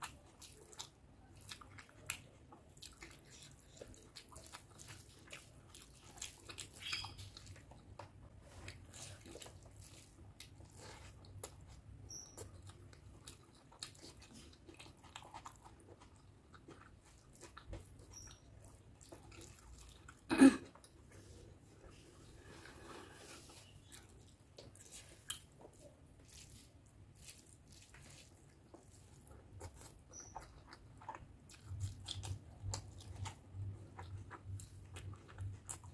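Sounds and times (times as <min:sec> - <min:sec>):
chewing with wet mouth clicks: 0:00.0 - 0:21.1, 0:23.4 - 0:35.9
fingers squelching rice: 0:08.7 - 0:12.5, 0:22.8 - 0:33.7.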